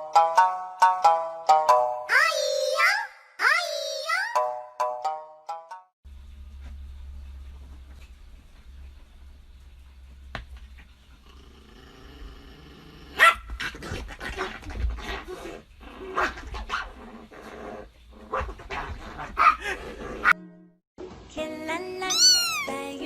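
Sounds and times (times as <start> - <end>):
dog barking: 13.2 - 13.5, 19.3 - 20.4.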